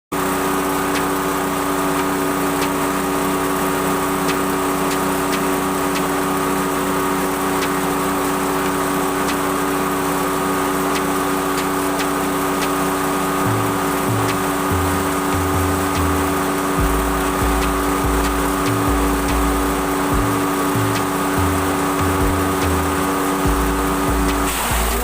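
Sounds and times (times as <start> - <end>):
motorcycle engine running: 0.1 - 25.0.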